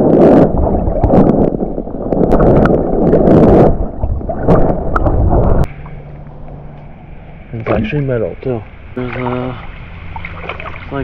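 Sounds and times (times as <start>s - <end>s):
water sloshing from wading: 3.8s - 11.0s
sharp water splashes: 7.6s - 11.0s.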